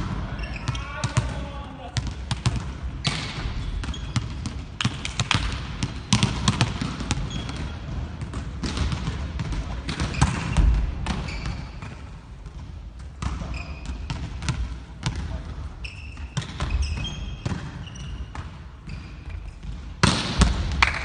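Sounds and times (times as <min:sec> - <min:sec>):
volleyballs smacking: 0:02.0 - 0:15.4, 0:19.6 - 0:21.0.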